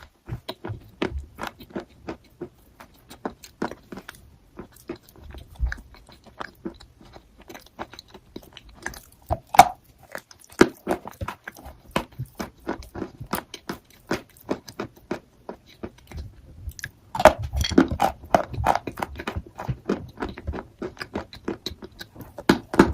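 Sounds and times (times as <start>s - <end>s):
chalk crunching as chewed: 0.0s - 22.9s.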